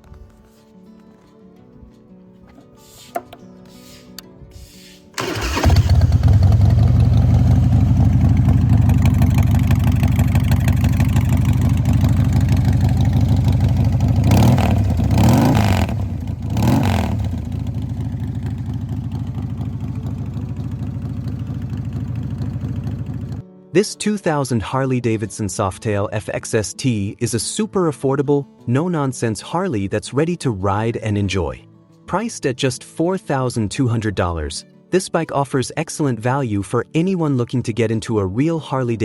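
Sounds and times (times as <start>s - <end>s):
motorcycle engine starting and idling: 5.2s - 23.4s.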